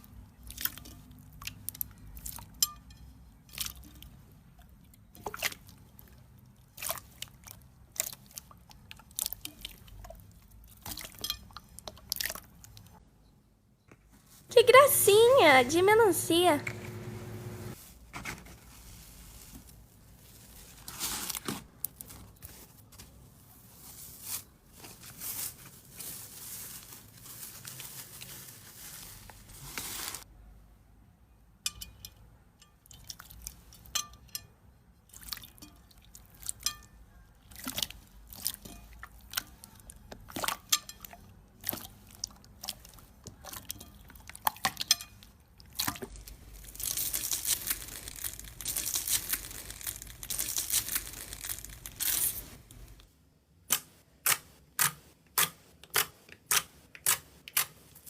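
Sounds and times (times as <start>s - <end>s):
slime squishing and popping: 45.8s - 52.4s.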